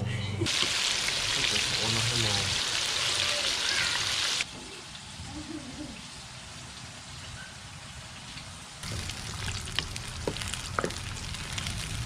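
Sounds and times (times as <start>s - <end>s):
food sizzling in a pan: 0.5s - 6.8s, 8.8s - 12.0s.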